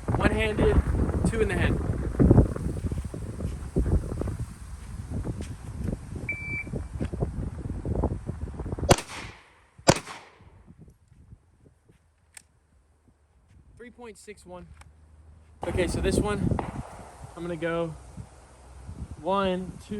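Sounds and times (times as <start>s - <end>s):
wind buffeting microphone: 0.0s - 12.0s, 15.6s - 19.9s
shot timer beep: 6.3s - 6.7s
pistol shots: 8.9s - 10.4s, 15.6s - 17.6s.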